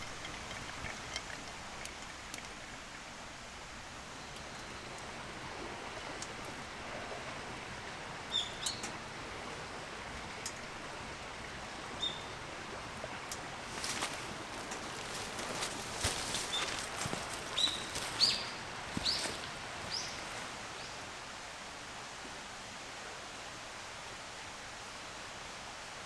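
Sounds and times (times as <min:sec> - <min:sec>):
outdoor hiss: 0:00.0 - 0:26.0.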